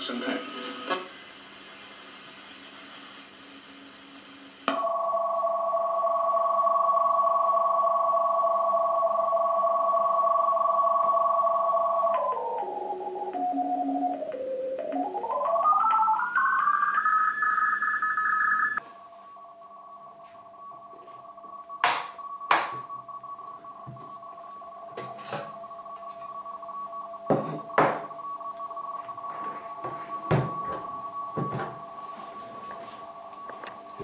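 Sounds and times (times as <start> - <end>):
quiet steady radio tones: 0.0 - 5.5, 8.4 - 34.0
radio whistle rising in pitch: 10.4 - 34.0.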